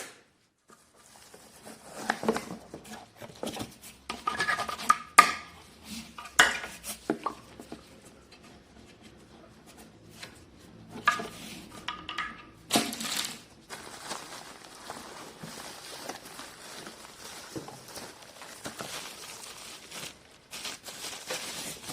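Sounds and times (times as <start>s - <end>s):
plastic parts knocking and clicking: 11.0s - 13.1s
packaging rustling: 12.7s - 21.9s.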